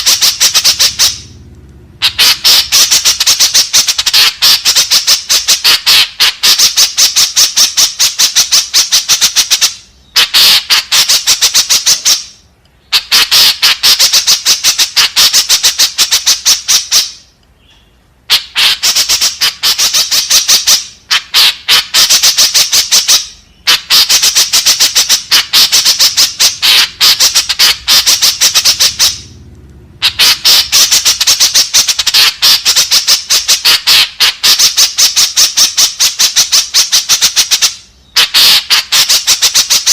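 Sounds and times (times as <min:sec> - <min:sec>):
woodswallow harsh calls: 0:02.0 - 0:29.3.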